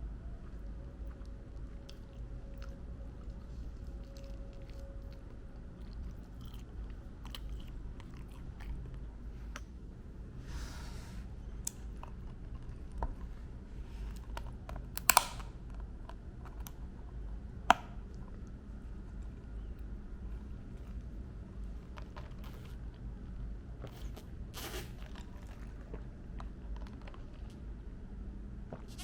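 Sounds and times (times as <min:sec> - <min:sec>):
chewing crispy fried chicken: 0:00.2 - 0:10.3, 0:11.5 - 0:14.9, 0:15.5 - 0:28.0
sharp loud clicks: 0:15.0 - 0:15.5
small clicks: 0:15.0 - 0:15.5.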